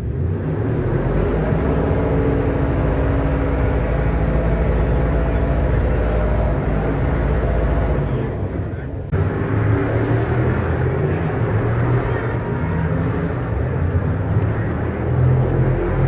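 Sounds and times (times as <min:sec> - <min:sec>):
low mechanical drone: 0:00.0 - 0:16.0.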